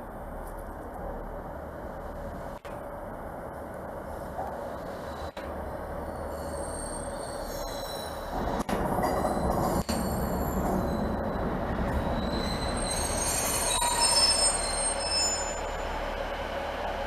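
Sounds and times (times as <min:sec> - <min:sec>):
train rumbling on rails: 0:00.0 - 0:17.0
train wheels squealing: 0:06.0 - 0:16.4.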